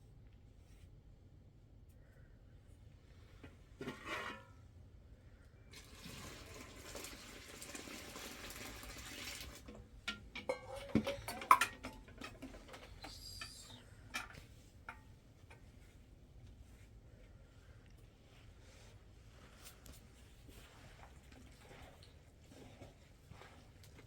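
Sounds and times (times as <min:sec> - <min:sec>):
rustling or scraping: 0:03.1 - 0:04.7, 0:18.1 - 0:24.0
objects knocking and clicking: 0:10.0 - 0:15.0.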